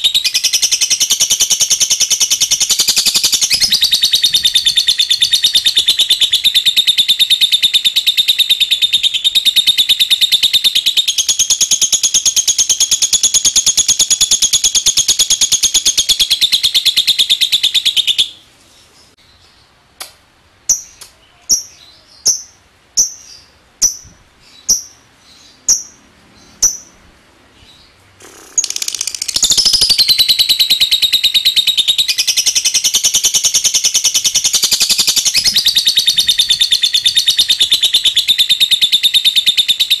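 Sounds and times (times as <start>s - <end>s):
lovebird chattering trill: 0.0s - 18.4s, 20.7s - 27.0s, 27.6s - 40.0s.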